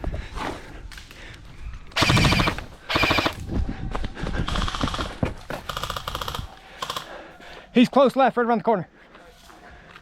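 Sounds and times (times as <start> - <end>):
airsoft guns rapid-fire bursts: 2.0 - 3.4, 5.7 - 7.1.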